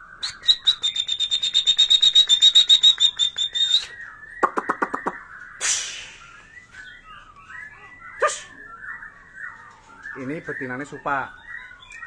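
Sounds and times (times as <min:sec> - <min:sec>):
bird harsh clicking notes: 0:00.3 - 0:06.2
bird short hissed call: 0:05.6 - 0:06.4.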